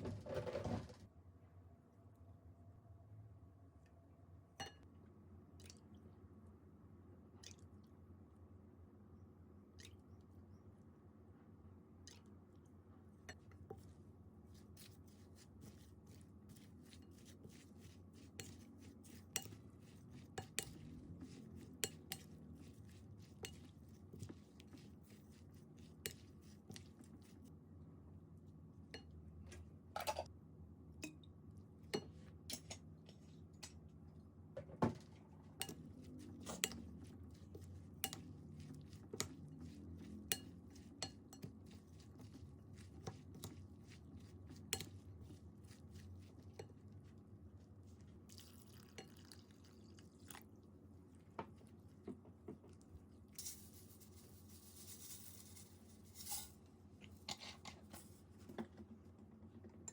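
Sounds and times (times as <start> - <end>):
low room hum: 0.0 - 59.9.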